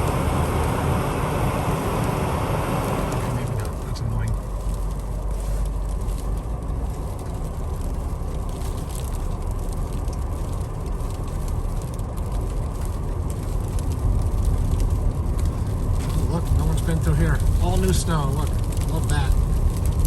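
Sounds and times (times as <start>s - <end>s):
tyre and road noise in car cabin: 0.0s - 20.0s.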